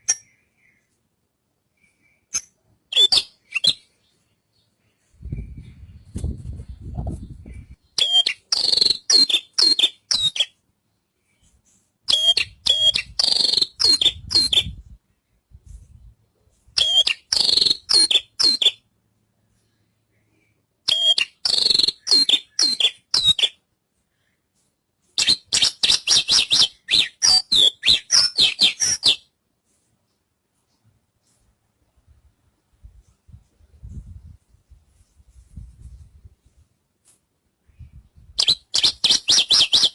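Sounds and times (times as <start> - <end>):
bird singing rapid high chirps: 1.9 - 4.2, 5.3 - 10.6, 12.1 - 14.8, 16.8 - 18.8, 20.9 - 23.6, 25.2 - 29.3, 38.2 - 39.9.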